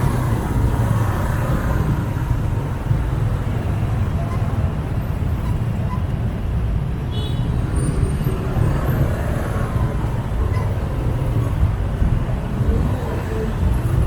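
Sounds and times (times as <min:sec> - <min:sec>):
motorbike engines rumbling: 0:00.0 - 0:14.0
road noise: 0:00.0 - 0:14.0.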